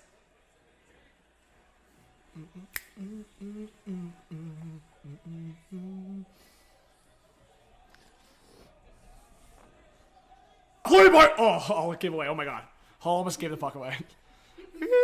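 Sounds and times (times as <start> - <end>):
man humming a tune: 2.3 - 6.3.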